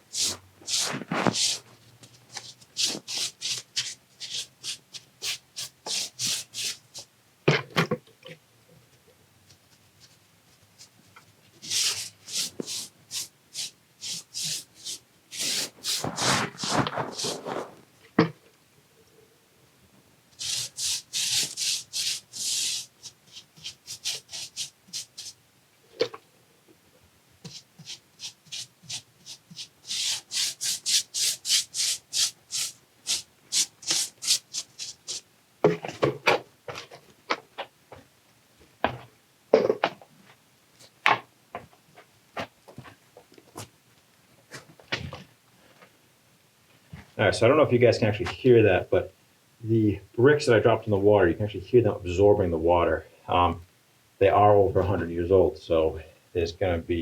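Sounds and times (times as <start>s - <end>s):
stiff brush scrubbing masonry: 0.0s - 6.8s, 11.6s - 17.8s, 20.4s - 25.3s, 27.5s - 35.2s
heavy scrape: 0.2s - 1.7s, 15.4s - 17.8s.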